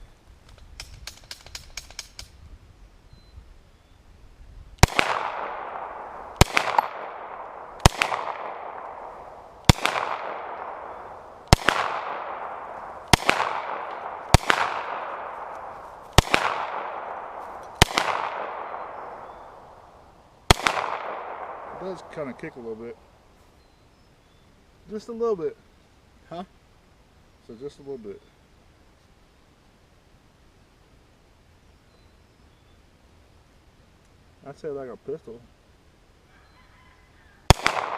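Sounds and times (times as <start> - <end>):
gunshots with long echo: 4.8 - 23.2, 37.5 - 37.9.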